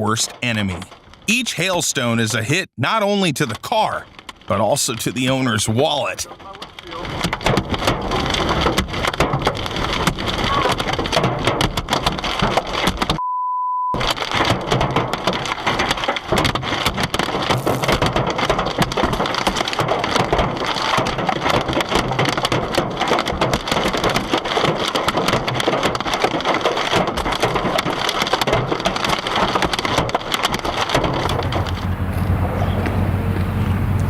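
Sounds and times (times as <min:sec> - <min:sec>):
hailstones pelting a car: 0:03.6 - 0:13.2, 0:14.0 - 0:34.0
short steady bleep: 0:13.2 - 0:14.0.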